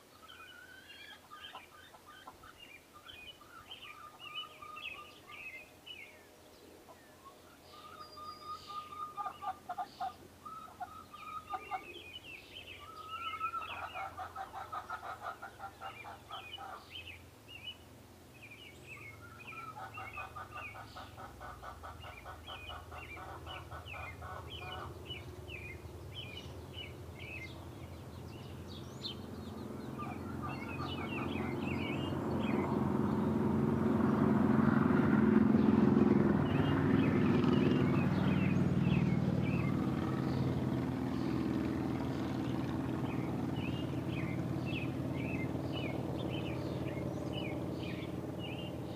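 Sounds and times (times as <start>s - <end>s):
small birds chirping: 0.0s - 34.4s, 35.5s - 48.9s
fast rattling bird call: 7.8s - 17.1s, 19.0s - 27.4s, 29.8s - 32.7s.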